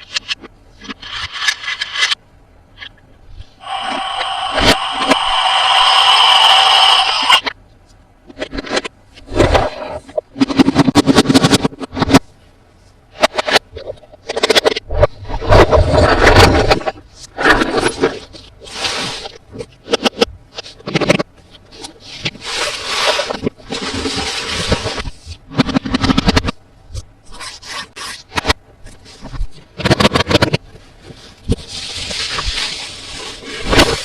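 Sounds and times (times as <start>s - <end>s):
packaging scraping rub: 13.2s - 26.6s, 27.2s - 34.0s
packaging scraping and rustling: 27.3s - 34.0s.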